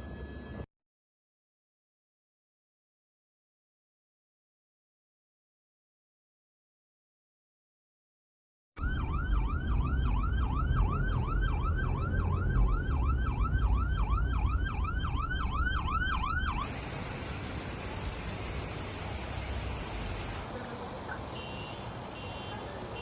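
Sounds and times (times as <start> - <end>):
emergency siren yelping: 8.8 - 18.0
steady hiss: 16.6 - 20.8.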